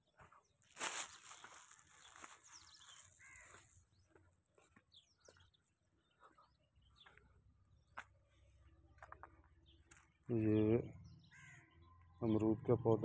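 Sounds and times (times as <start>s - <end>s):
faint bird calls: 0.2s - 13.0s
crows cawing: 0.8s - 3.8s, 11.2s - 11.9s.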